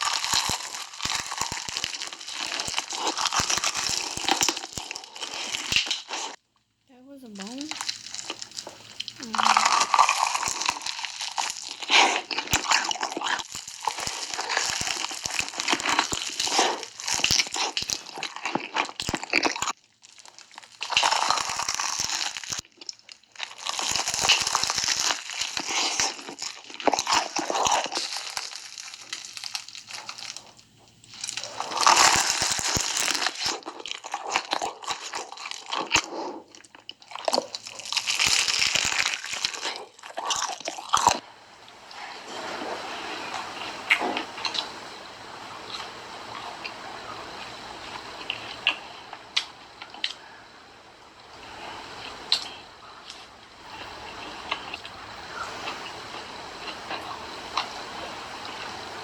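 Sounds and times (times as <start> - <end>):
chip bag crinkling: 0.0 - 6.4, 7.3 - 41.2
crunching chips: 0.0 - 6.4, 7.4 - 41.2, 41.8 - 50.3, 51.0 - 59.0.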